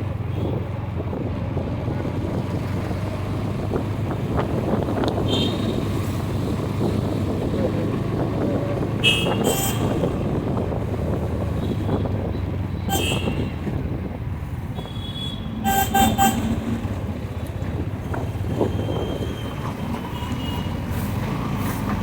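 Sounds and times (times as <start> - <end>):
wind on microphone: 0.0 - 20.1
motorcycle engine and road drone: 0.0 - 22.0
horn toots: 9.0 - 10.4, 12.9 - 13.8, 14.8 - 17.0.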